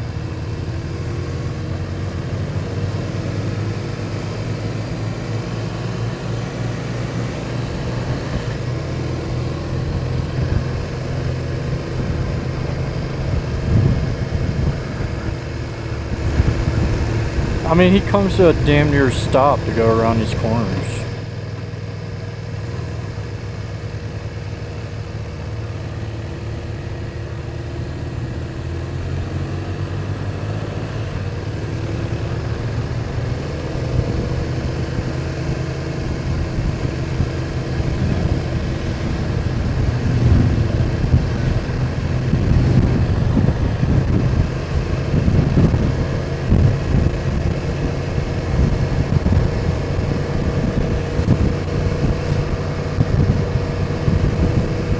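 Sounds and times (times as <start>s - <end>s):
motorcycle engine running: 0.0s - 54.9s
wind buffeting microphone: 9.7s - 22.0s, 31.2s - 54.9s.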